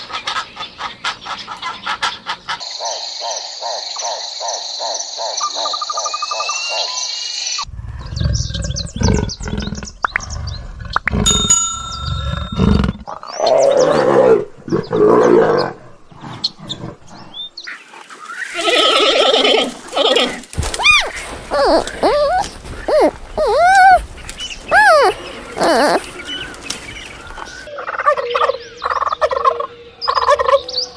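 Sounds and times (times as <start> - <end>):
big cat roaring: 13.4 - 17.4
animal calls: 18.4 - 30.7.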